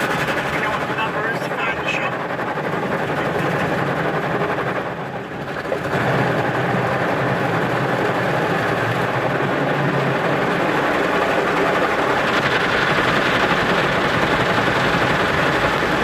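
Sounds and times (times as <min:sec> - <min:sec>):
car wash machinery rumbling: 0:00.0 - 0:16.0.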